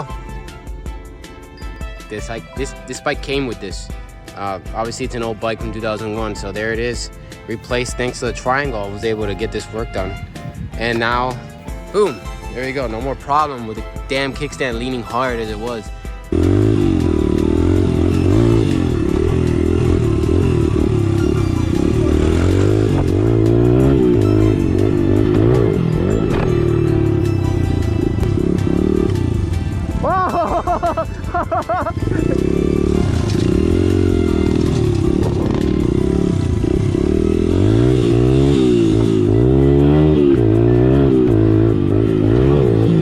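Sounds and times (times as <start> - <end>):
motorcycle engine revving: 12.6 - 43.0.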